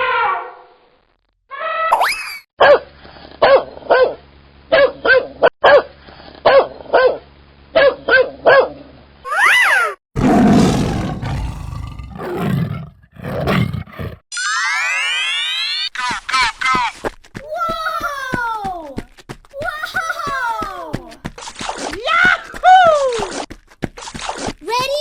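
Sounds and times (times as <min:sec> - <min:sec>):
loud animal roar: 0:10.2 - 0:14.2.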